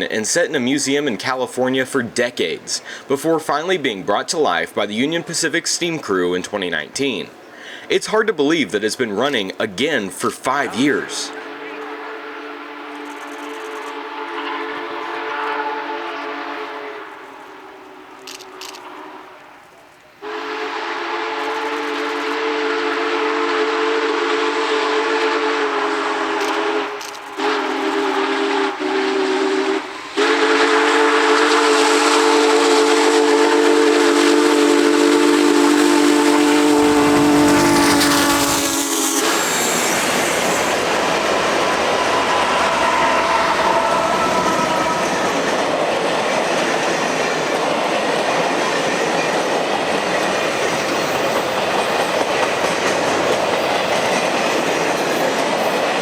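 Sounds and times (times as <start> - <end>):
train rumbling past: 0.0 - 56.0
steam whistle blasts: 11.3 - 19.6, 20.2 - 45.7
wheels clacking on rails: 34.0 - 56.0.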